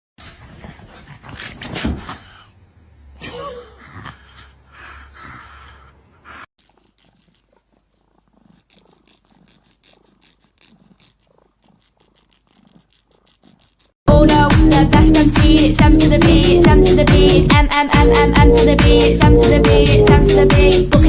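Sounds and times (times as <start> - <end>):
pet animal sounds: 3.9 - 14.0
short repeated strokes: 6.6 - 14.0.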